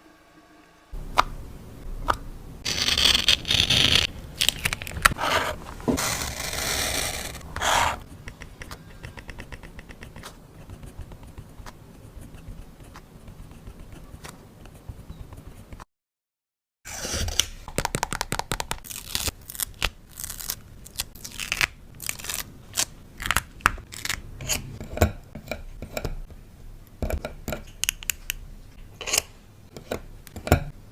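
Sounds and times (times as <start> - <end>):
paper scraping and rustling: 2.6 - 8.1.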